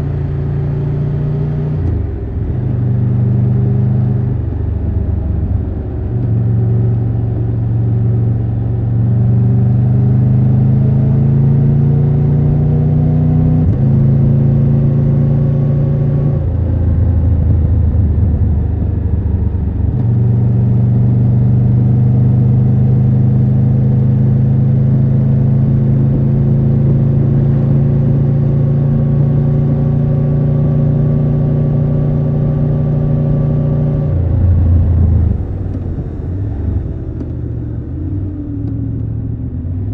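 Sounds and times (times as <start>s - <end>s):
motorcycle engine shifting gears: 8.7s - 39.9s.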